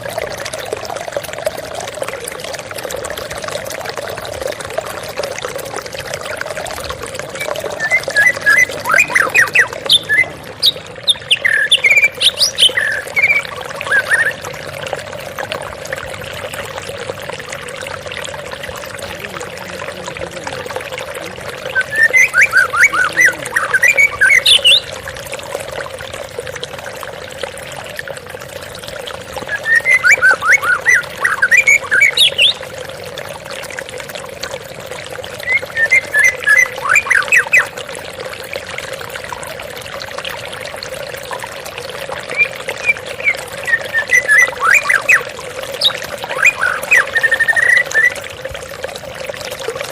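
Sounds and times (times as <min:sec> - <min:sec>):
waterfall rushing: 0:07.4 - 0:13.4, 0:18.8 - 0:24.8.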